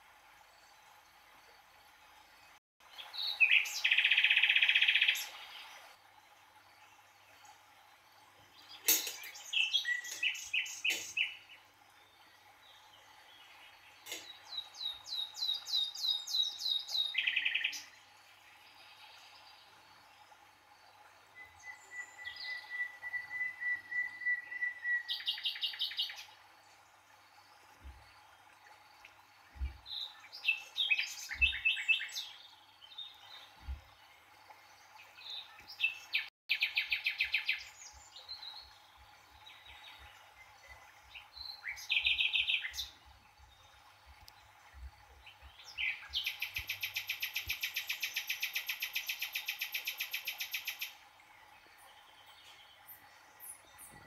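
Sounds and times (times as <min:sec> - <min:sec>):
birds chirping and trilling: 0:02.5 - 0:05.9, 0:08.6 - 0:19.8, 0:29.0 - 0:54.0.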